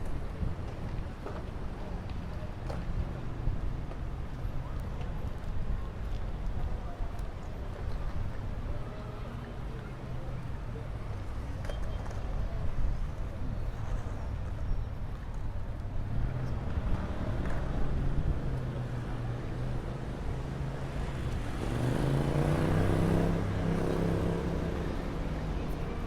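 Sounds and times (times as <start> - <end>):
motor traffic rumbling: 15.7 - 26.0.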